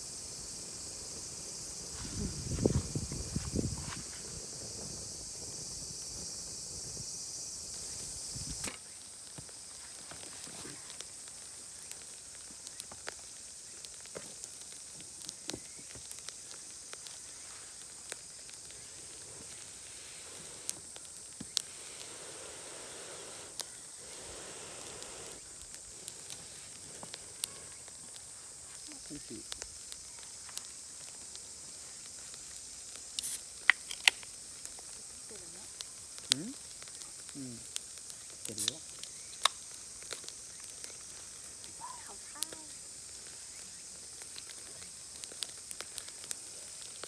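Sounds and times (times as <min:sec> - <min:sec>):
charcoal fire crackling and popping: 0:00.0 - 0:47.0
loud high hiss: 0:18.9 - 0:26.8.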